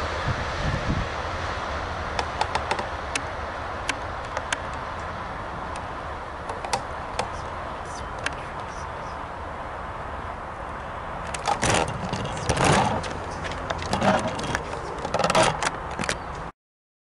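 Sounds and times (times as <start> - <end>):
train rumble and hiss: 0.0 - 16.3
sharp clicks: 6.5 - 7.4.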